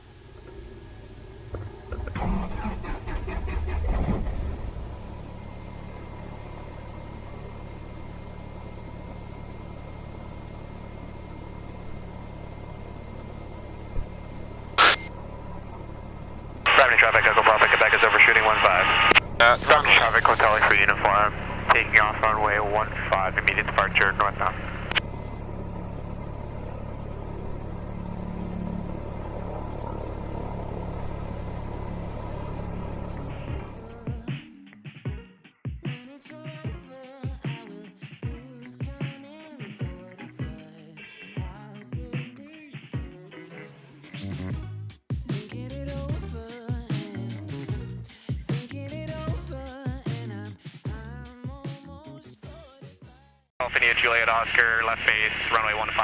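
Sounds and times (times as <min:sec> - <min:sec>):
airplane engine idling: 0:00.0 - 0:34.2, 0:53.6 - 0:56.0.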